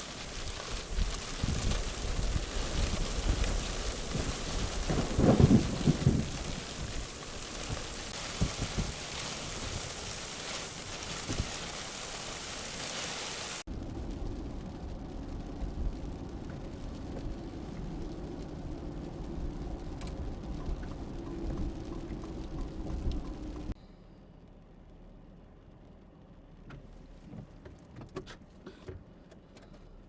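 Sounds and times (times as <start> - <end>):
thunder rumble: 0.0 - 13.0, 13.6 - 23.8
heavy rain hissing: 0.0 - 19.6
dull steady noise: 13.7 - 27.4.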